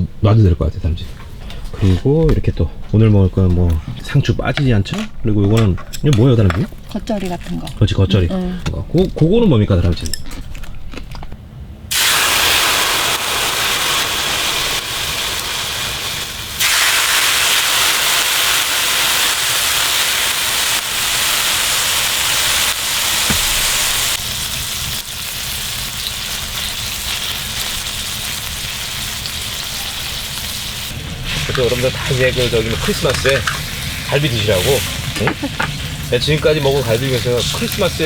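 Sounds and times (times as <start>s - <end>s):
meat sizzling on a griddle: 11.9s - 38.0s.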